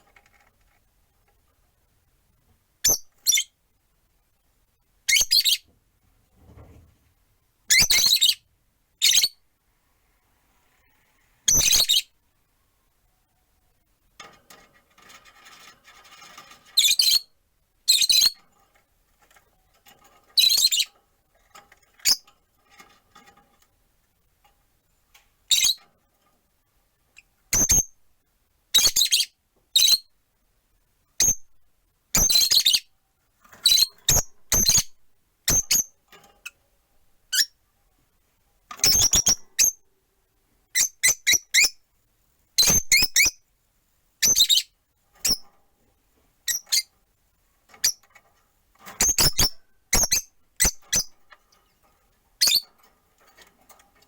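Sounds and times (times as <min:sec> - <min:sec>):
lovebirds chirping and squawking: 0:05.1 - 0:05.7, 0:07.7 - 0:08.4, 0:11.5 - 0:12.1, 0:15.5 - 0:17.3, 0:17.9 - 0:18.4, 0:20.4 - 0:21.0, 0:25.5 - 0:25.8, 0:32.2 - 0:32.9, 0:33.6 - 0:35.9, 0:38.8 - 0:39.8, 0:44.2 - 0:45.5, 0:46.5 - 0:46.9, 0:49.0 - 0:51.4, 0:52.4 - 0:52.7.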